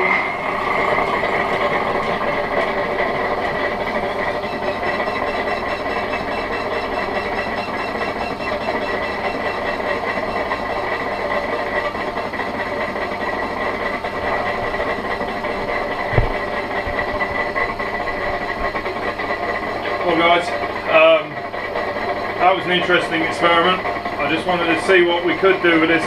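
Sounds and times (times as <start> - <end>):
high whine: 0.0 - 21.4
lathe machine drone: 0.0 - 26.0
short thump: 16.1 - 16.4.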